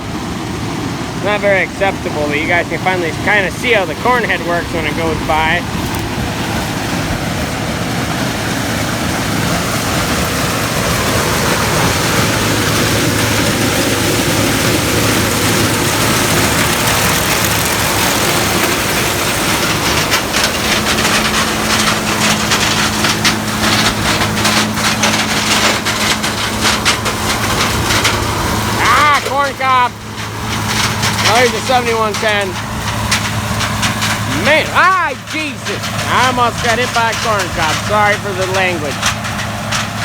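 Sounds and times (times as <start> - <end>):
combine engine and machinery drone: 0.0 - 40.0
corn stalks crackling: 1.2 - 40.0.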